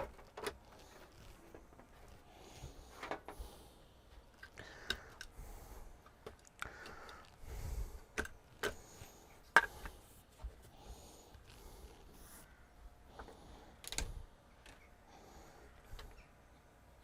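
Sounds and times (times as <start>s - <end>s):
clicks and knocks of tv parts: 0.0s - 2.2s, 2.9s - 3.4s, 8.1s - 8.8s, 13.2s - 14.9s.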